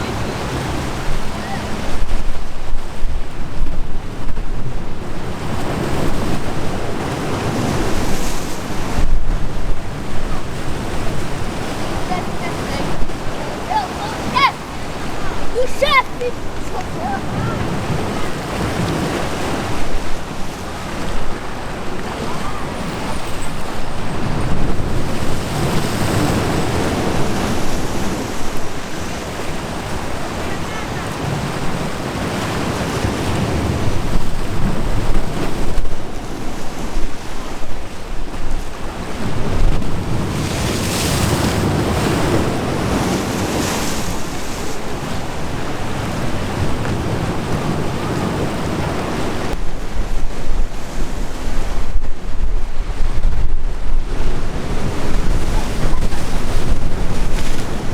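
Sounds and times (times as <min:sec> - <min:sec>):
sea waves breaking: 0:00.0 - 0:57.9
wind rumbling on microphone: 0:00.0 - 0:57.9.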